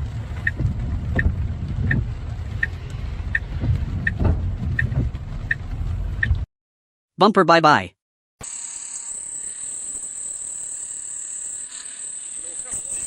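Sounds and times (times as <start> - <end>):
low rumble: 0.0 - 6.5.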